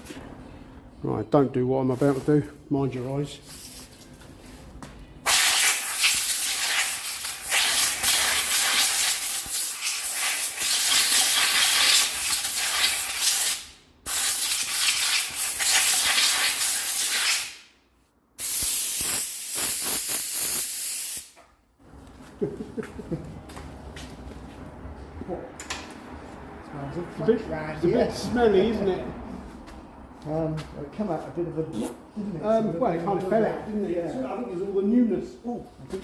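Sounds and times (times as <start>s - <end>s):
air blow gun hissing: 5.3s - 17.6s, 18.4s - 21.4s.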